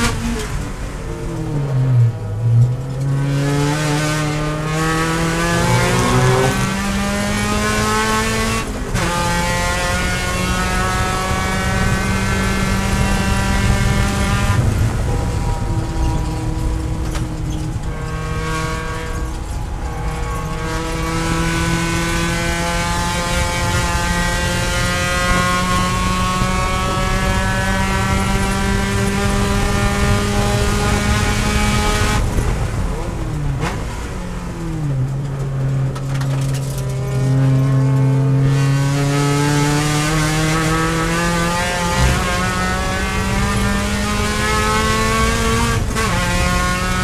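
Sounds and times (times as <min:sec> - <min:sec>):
race car engine revving: 0:00.0 - 0:47.0.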